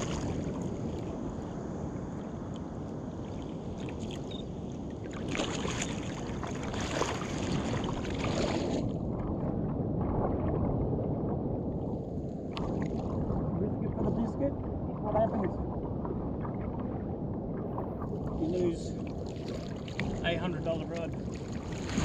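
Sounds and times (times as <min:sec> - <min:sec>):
water splashing against kayak hull: 0:00.0 - 0:01.8, 0:02.5 - 0:10.9, 0:11.8 - 0:13.9, 0:17.7 - 0:22.0
wind rumble on microphone: 0:00.0 - 0:22.0.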